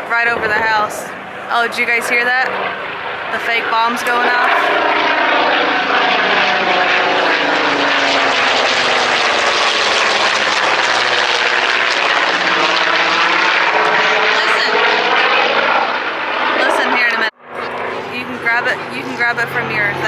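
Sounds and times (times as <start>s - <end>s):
jet aircraft roaring overhead: 0.0s - 20.0s.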